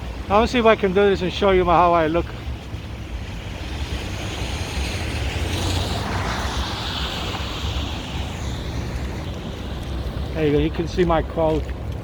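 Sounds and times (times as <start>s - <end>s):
street traffic: 0.0s - 12.0s
wind rumbling on microphone: 0.0s - 12.0s
vehicle passing: 1.8s - 11.2s.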